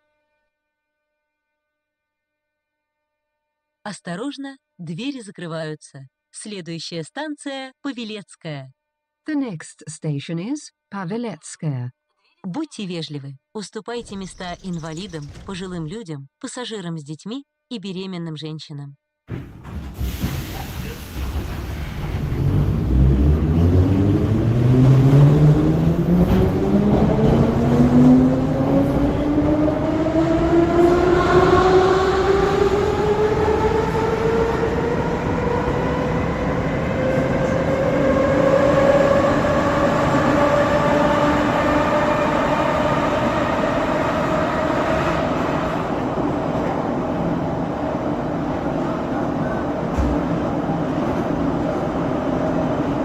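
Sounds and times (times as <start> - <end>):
wheels rumbling on rails: 20.5 - 53.0.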